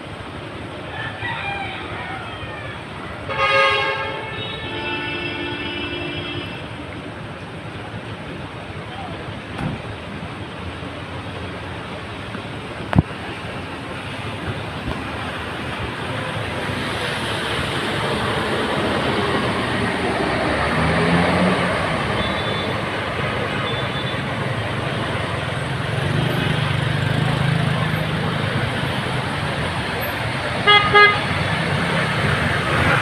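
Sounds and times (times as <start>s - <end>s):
road traffic: 0.0s - 33.0s
heavy rain: 6.8s - 33.0s
vehicle engine passing: 16.6s - 22.2s.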